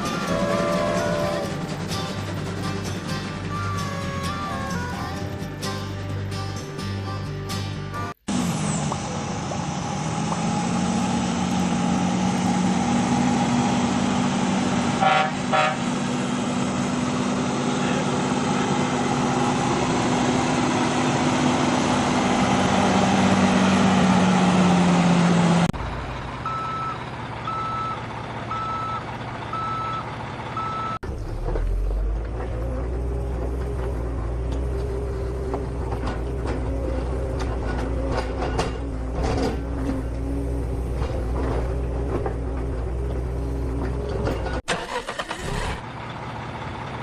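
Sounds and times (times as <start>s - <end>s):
horn toots: 0.0s - 1.6s, 14.9s - 16.0s
vehicle engine humming: 0.0s - 47.0s
high reversing beeps: 26.4s - 31.0s.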